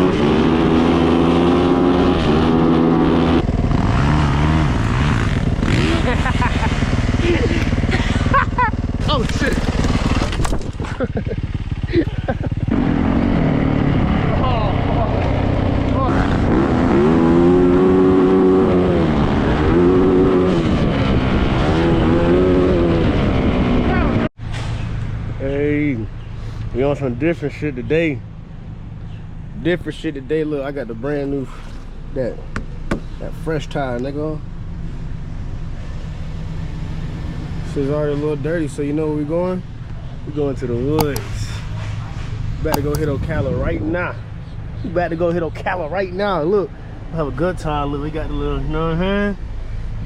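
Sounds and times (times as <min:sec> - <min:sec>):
dirt bike engine revving: 0:00.0 - 0:24.3.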